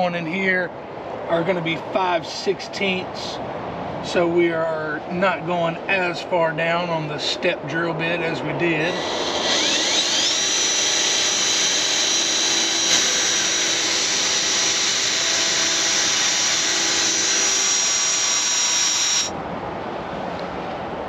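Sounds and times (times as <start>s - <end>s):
power drill whining through metal: 8.8s - 19.3s.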